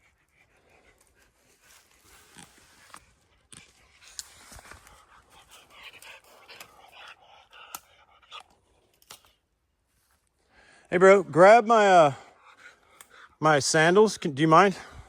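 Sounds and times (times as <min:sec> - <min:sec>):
rustles: 0:00.0 - 0:07.2
faint panting breaths: 0:00.0 - 0:09.0, 0:11.8 - 0:13.4, 0:14.7 - 0:15.0.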